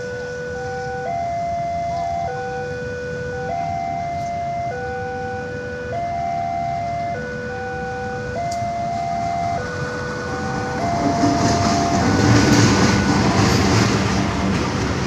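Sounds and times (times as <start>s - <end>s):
level-crossing warning tones: 0.0s - 15.0s
train rumble and rail clatter: 8.0s - 15.0s.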